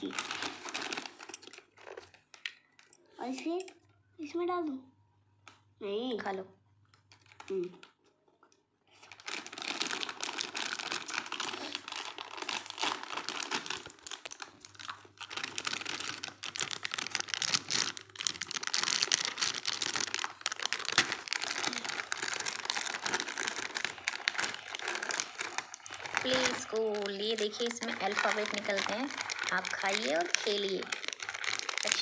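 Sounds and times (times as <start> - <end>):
plastic wrapper crinkling: 0.0 - 3.9, 6.8 - 32.0.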